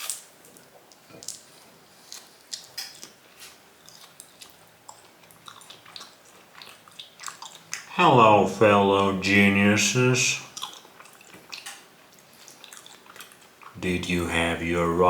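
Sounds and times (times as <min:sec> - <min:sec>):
person chewing: 0:00.9 - 0:09.3, 0:10.4 - 0:13.8.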